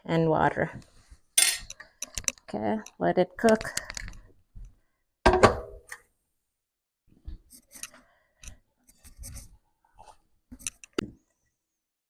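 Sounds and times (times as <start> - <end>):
cookware clattering with ring: 1.4 - 1.7.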